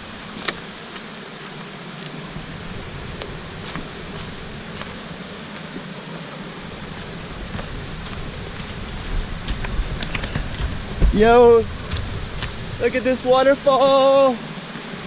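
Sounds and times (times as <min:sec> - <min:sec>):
river and waterfall rushing: 0:00.0 - 0:15.0.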